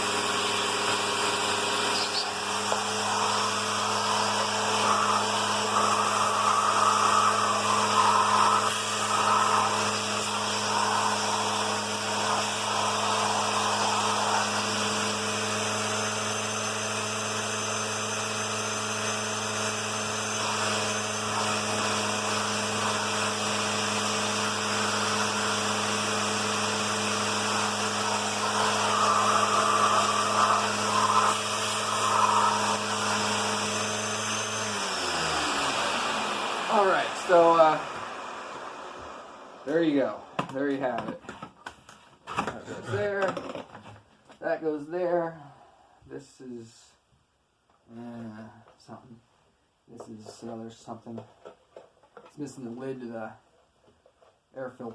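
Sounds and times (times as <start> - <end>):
motor winding down: 0.0 - 40.1
vacuum cleaner motor hum: 0.0 - 40.5.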